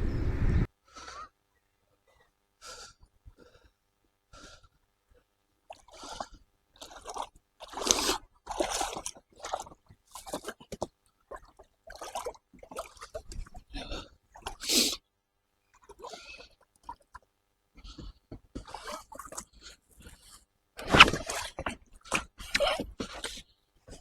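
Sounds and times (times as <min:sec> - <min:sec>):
paddle splashing water: 0:06.8 - 0:13.4, 0:20.8 - 0:24.0.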